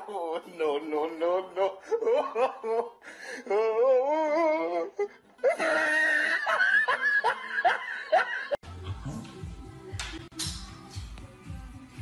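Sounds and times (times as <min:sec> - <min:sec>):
person laughing: 0:04.3 - 0:09.3.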